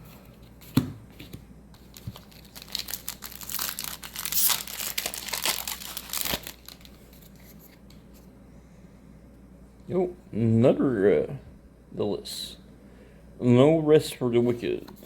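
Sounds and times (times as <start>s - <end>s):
foil wrapper crinkling: 1.8s - 7.6s.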